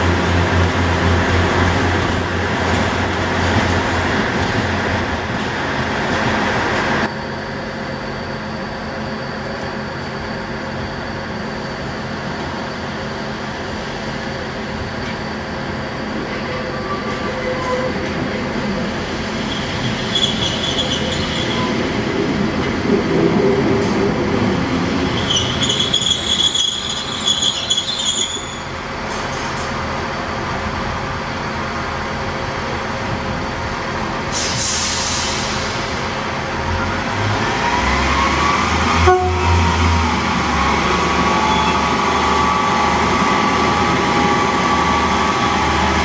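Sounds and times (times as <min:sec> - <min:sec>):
diesel railbus engine: 0:00.0 - 0:46.0
wheels squealing on track: 0:18.7 - 0:22.1, 0:25.0 - 0:28.7, 0:40.8 - 0:45.9.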